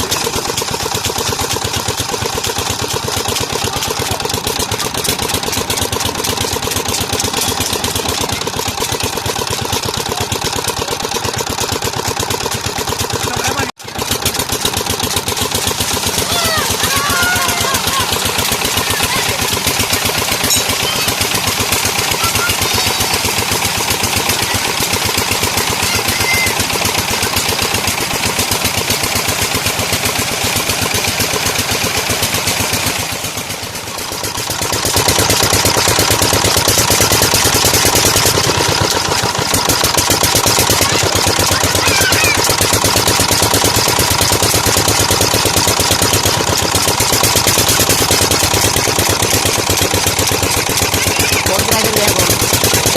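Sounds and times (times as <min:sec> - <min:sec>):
diesel pump engine knocking: 0:00.0 - 0:52.9.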